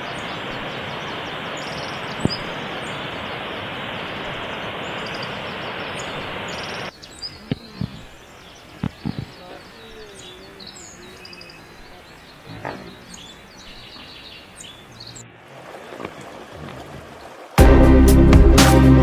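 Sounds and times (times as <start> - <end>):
faint bird chirps: 0.0 - 3.6, 4.2 - 15.4
stream rushing over rocks: 0.0 - 13.6, 14.5 - 17.6.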